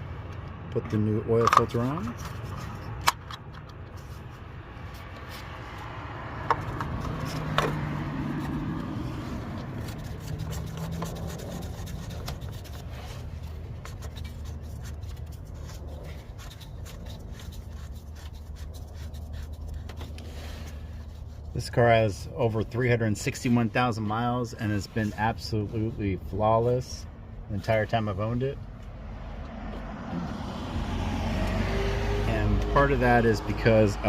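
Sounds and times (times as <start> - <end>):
scraping and rubbing: 1.4 - 28.3.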